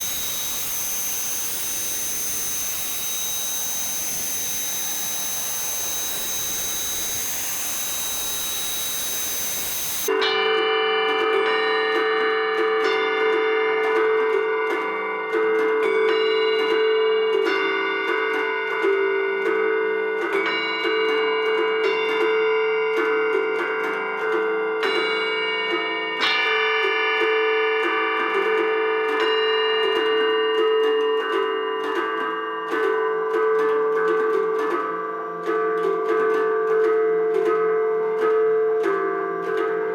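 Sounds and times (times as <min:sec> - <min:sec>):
solenoid strikers ticking: 0:00.0 - 0:10.1
steady drone note: 0:00.0 - 0:10.2
ringing metal percussion notes: 0:00.0 - 0:39.9.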